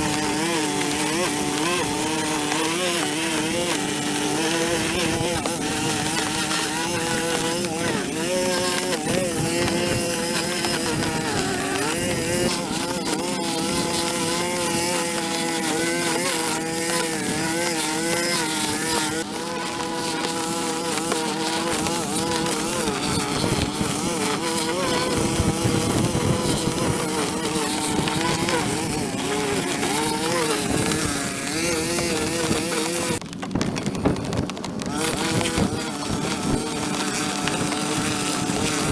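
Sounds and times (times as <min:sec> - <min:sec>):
small petrol engine whining: 0:00.0 - 0:38.9.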